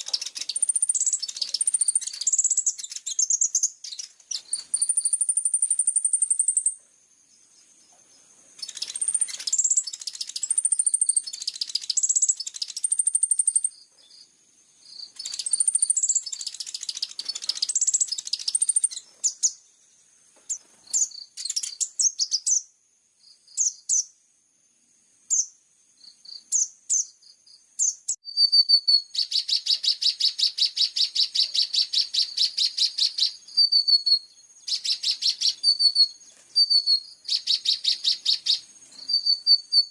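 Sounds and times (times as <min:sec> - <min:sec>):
songbird singing chirps and trills: 0:00.0 - 0:39.9.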